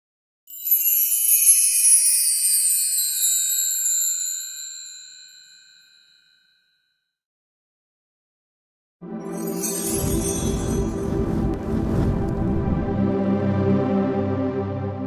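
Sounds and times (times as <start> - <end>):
bell-like shimmer effect: 0.5 - 6.8, 9.0 - 12.1.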